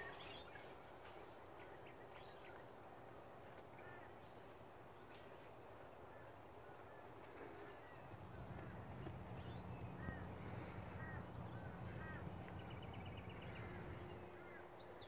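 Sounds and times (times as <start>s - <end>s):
birds chirping: 0.0s - 15.0s
low hum: 7.4s - 15.0s.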